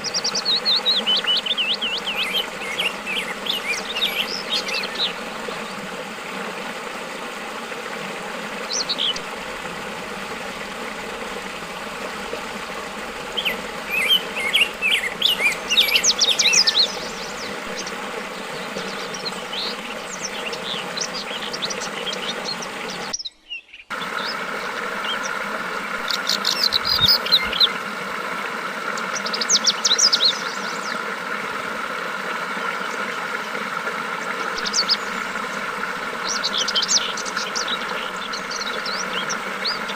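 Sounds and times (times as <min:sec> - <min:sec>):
birds chirping: 0:00.0 - 0:07.4, 0:08.2 - 0:28.0, 0:28.8 - 0:31.4, 0:32.2 - 0:39.9
flowing water: 0:00.0 - 0:23.3, 0:23.9 - 0:39.9.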